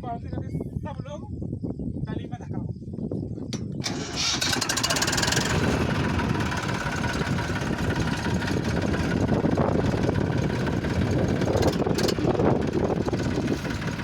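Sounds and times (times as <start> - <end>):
tractor diesel engine running: 3.8 - 14.0.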